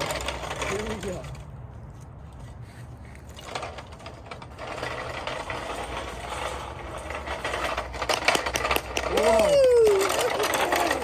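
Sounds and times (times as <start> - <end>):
toy truck motor whirring: 3.2 - 11.0.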